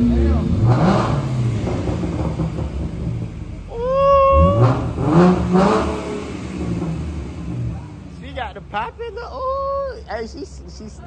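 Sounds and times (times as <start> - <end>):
car engine revving: 0.0 - 9.4
exhaust popping: 0.0 - 9.4.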